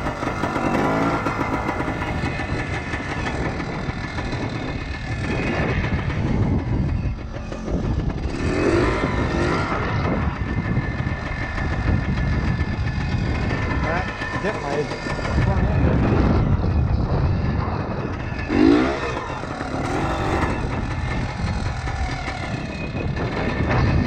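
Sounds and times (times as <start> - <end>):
two-stroke motorbike engine revving: 0.0 - 24.0.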